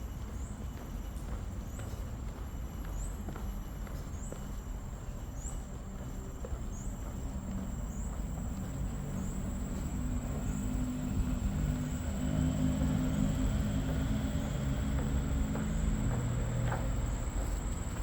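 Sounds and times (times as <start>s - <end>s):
faint footsteps: 0.1s - 18.0s
steady low rumble: 6.3s - 18.0s
low hum: 7.2s - 18.0s.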